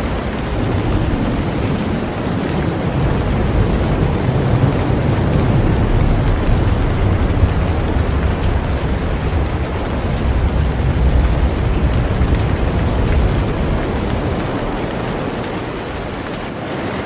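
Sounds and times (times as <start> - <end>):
deep rumble: 0.0 - 16.5
heavy rain falling on a boat: 0.0 - 17.0.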